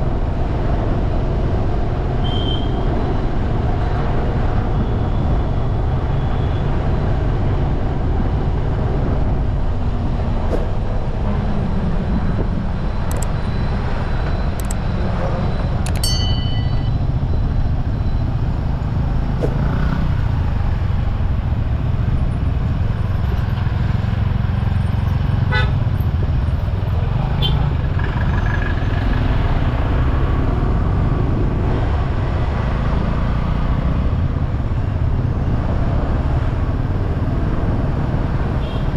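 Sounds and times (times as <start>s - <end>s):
low road rumble: 0.0s - 38.9s
vehicle horn toot: 2.2s - 2.8s, 25.5s - 25.8s, 38.6s - 38.9s
short beeps: 12.8s - 18.4s.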